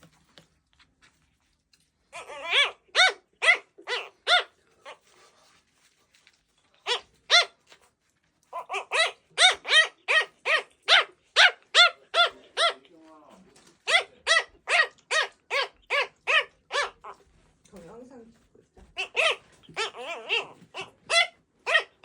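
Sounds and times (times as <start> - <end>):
puppy yapping: 2.1 - 5.1, 6.8 - 7.9, 8.5 - 12.8, 13.8 - 17.2, 18.9 - 22.0.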